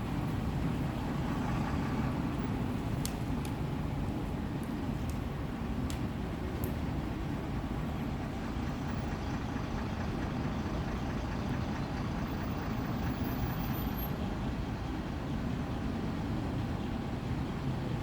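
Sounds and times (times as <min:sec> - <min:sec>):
bus diesel engine idling: 0:07.3 - 0:17.4.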